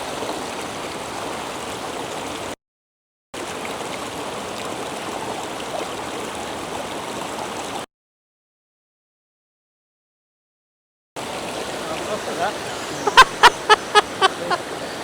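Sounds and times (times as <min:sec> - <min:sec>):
rushing water of river cascade: 0:00.0 - 0:02.6, 0:03.4 - 0:07.8, 0:11.2 - 0:15.0.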